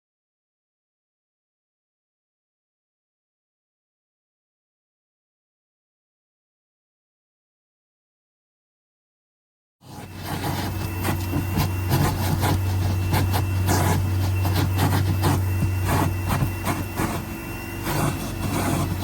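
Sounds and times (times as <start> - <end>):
cleaning tool motor whining: 9.9 - 19.0
scrubbing strokes: 9.9 - 19.0.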